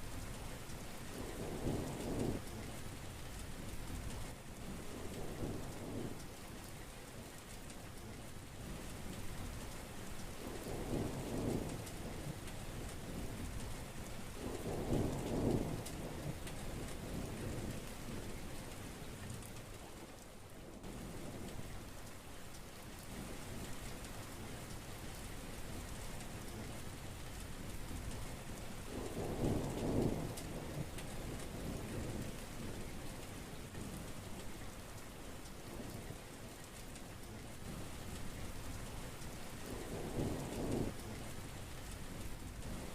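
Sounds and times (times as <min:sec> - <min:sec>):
heavy rain falling: 0:00.0 - 0:42.9
thunder rumbling: 0:28.9 - 0:32.9, 0:39.6 - 0:41.6.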